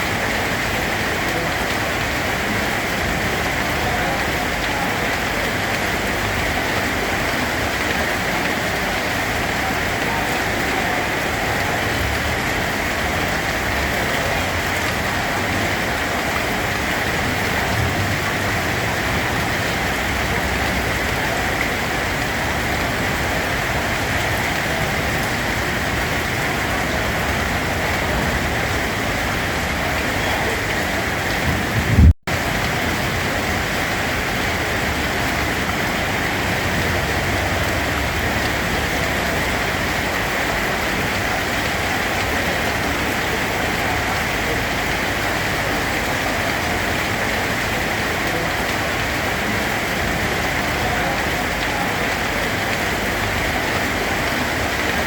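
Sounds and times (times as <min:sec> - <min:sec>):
steady rain falling: 0:00.0 - 0:55.0
low thump: 0:31.4 - 0:32.2.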